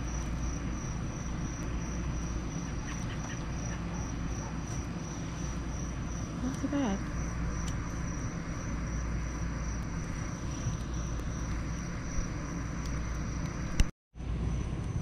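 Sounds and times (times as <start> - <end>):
campfire crackling: 0.0 - 13.9
crickets trilling: 0.0 - 13.9.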